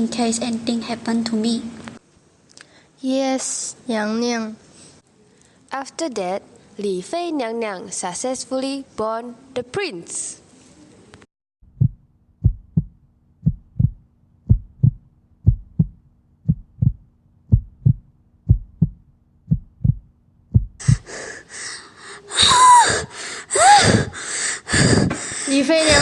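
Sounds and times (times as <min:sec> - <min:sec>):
heartbeat thumps: 0:11.6 - 0:21.2.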